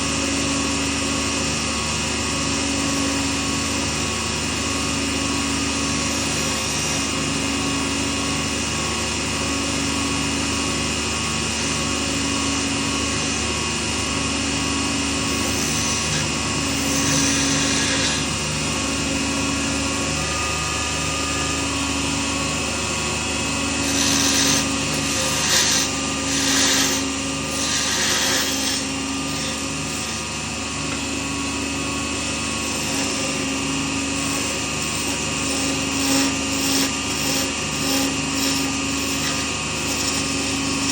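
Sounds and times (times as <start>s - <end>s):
lathe motor hum: 1.2s - 40.9s
hissing of lathe cutting: 14.9s - 21.0s, 21.7s - 40.9s.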